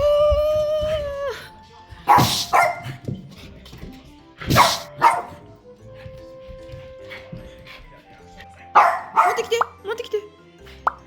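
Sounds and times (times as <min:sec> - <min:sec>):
dog barking: 0:02.1 - 0:03.1, 0:04.4 - 0:05.5, 0:08.6 - 0:09.8.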